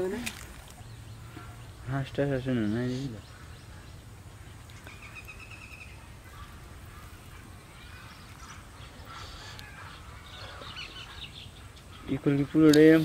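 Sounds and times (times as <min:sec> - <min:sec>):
faint bird calls: 0:00.1 - 0:13.0.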